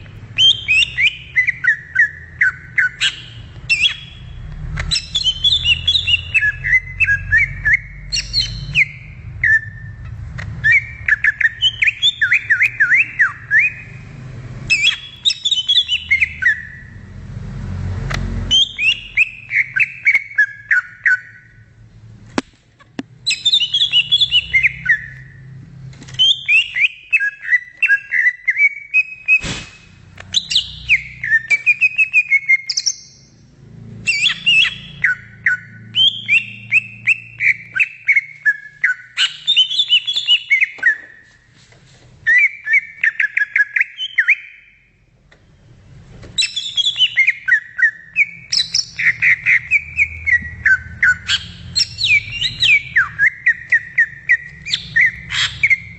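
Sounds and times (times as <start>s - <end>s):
bird singing whistled phrases: 0.4s - 10.0s, 10.6s - 14.0s, 14.7s - 17.0s, 18.5s - 21.6s, 23.2s - 25.4s, 26.2s - 33.3s, 34.1s - 41.2s, 42.2s - 44.9s, 46.4s - 55.9s.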